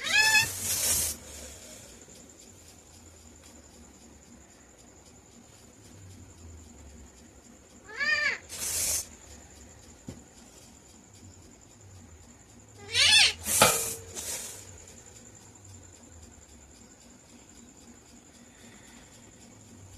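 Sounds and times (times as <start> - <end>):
parakeet meow-like call: 0.0 - 0.7, 7.9 - 8.4, 12.8 - 13.6
parakeet harsh screech: 0.0 - 1.1, 7.9 - 8.4, 12.8 - 13.9.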